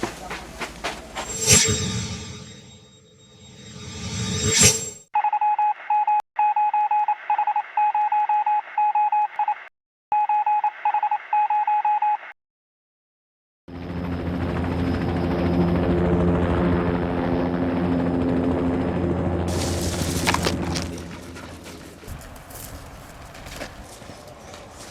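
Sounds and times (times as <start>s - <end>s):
electronic beep tone: 1.3s - 9.6s.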